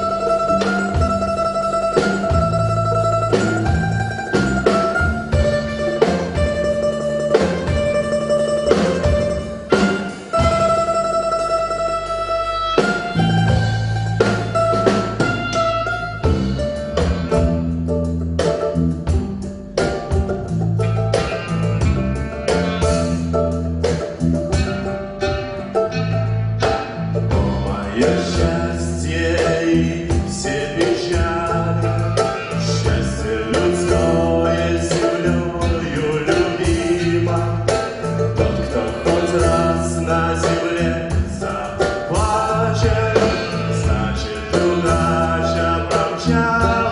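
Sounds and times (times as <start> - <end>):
instrumental folk band: 0.0 - 46.9
percussion hits: 0.0 - 46.9
repeating bass line: 0.0 - 46.9
voices singing: 27.4 - 46.9.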